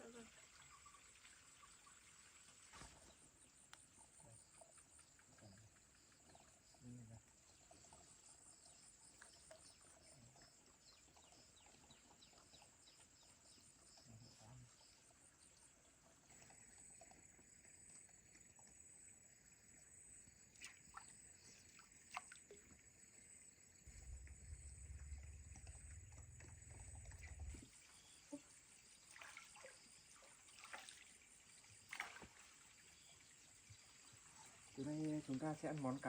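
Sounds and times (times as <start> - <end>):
low rumble: 23.8 - 27.7.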